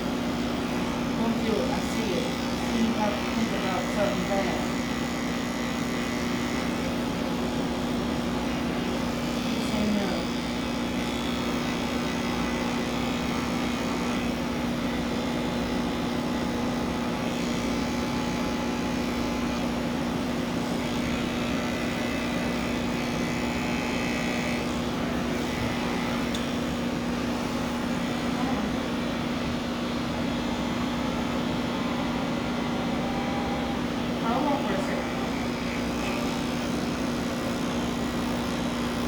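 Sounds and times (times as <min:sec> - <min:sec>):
electric clippers humming: 0:00.0 - 0:39.0.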